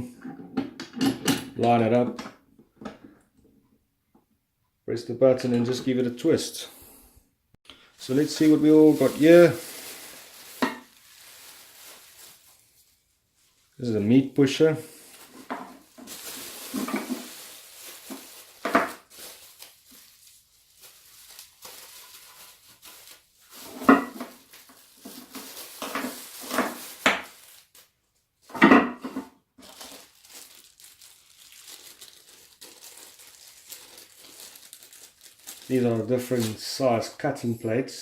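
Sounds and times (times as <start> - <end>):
plastic packaging crinkling: 8.0 - 28.5, 29.6 - 36.8.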